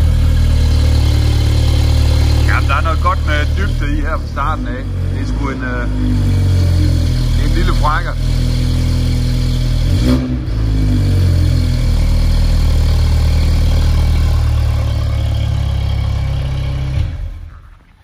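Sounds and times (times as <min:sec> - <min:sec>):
car engine with deep exhaust note: 0:00.0 - 0:18.0.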